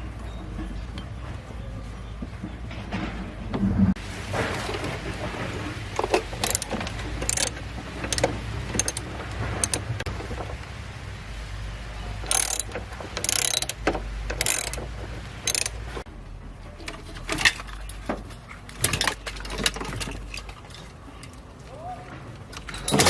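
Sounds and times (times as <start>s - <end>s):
clicks and knocks: 2.3s - 10.8s.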